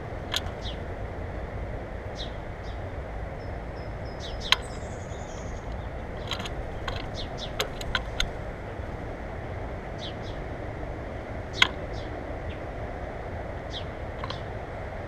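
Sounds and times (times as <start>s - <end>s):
songbirds chirping: 0.0s - 15.0s
sharp clicks: 5.7s - 8.4s, 11.6s - 11.8s.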